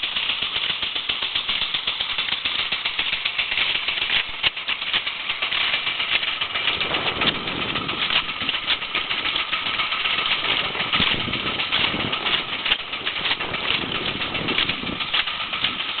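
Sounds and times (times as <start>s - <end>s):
crackling noise: 0.0s - 16.0s
small boat motor running: 0.0s - 16.0s.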